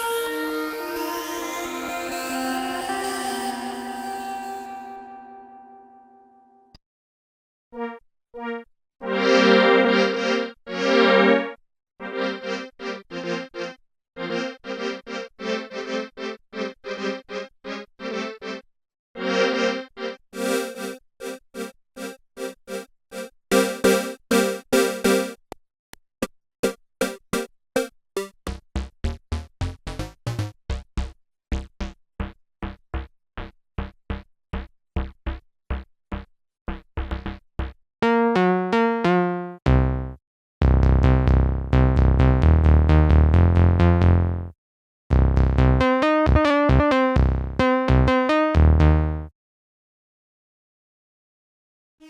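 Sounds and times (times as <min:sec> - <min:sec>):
synthesizer plucked notes: 0:19.2 - 0:25.4, 0:26.6 - 0:44.1, 0:45.1 - 0:49.3
deep synth bass: 0:28.8 - 0:44.5, 0:45.1 - 0:49.3.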